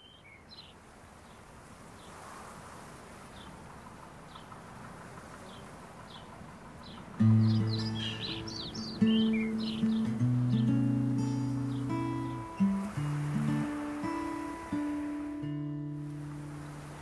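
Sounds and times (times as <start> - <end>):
bird chirps: 0.0 - 1.4, 5.4 - 12.7
acoustic guitar playing: 7.2 - 17.0.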